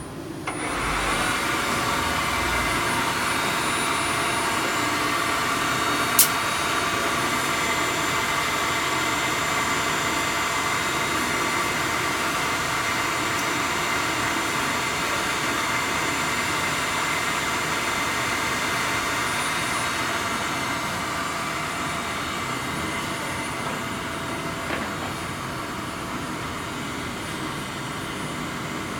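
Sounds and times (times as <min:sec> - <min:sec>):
machine hum with steady tones: 0:00.0 - 0:28.9
sharp click: 0:06.2 - 0:06.4.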